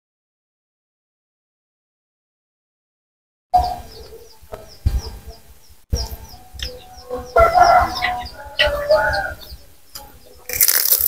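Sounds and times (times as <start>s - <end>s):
small birds chirping: 3.6s - 11.0s
chicken call: 6.0s - 9.7s.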